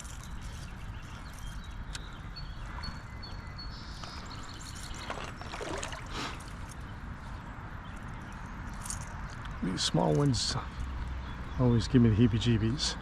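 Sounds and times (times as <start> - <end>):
water splashing: 4.9 - 6.6.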